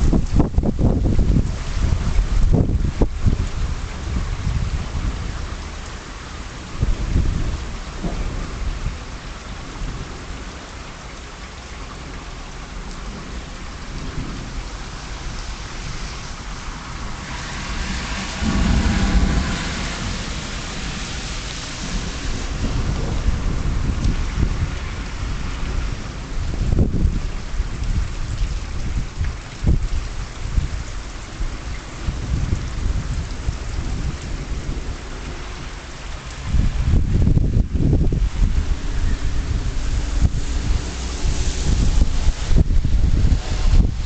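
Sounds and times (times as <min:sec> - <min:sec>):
heavy rain falling: 0:00.0 - 0:44.0
low rumbles: 0:13.0 - 0:44.0.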